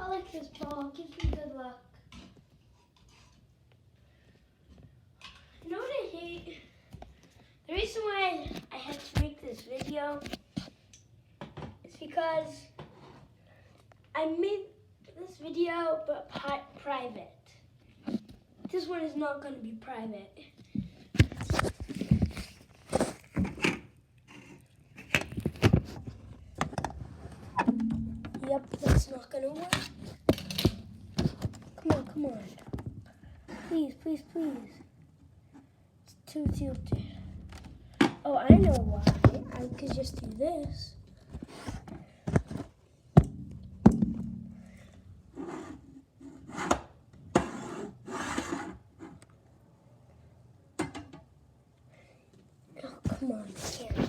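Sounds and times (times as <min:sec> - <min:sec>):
objects knocking on hard surface: 0:25.2 - 0:29.0, 0:29.6 - 0:33.1, 0:36.4 - 0:45.4
knocks on hard wood: 0:36.5 - 0:41.0.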